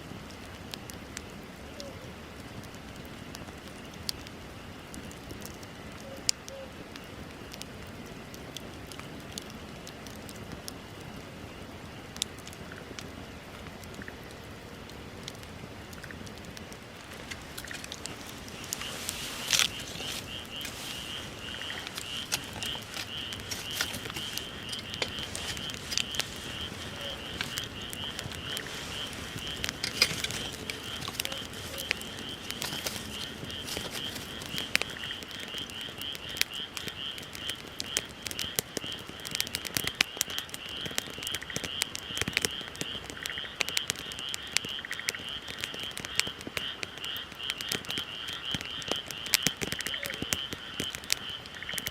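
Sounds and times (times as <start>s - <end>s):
wood fire crackling and popping: 0.0s - 51.9s
frog trilling: 17.3s - 39.1s, 39.9s - 51.9s.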